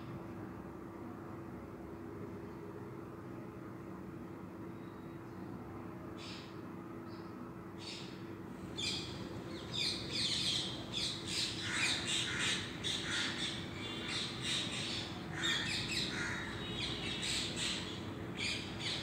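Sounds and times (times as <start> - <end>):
birds chirping and squawking: 8.8 - 19.0.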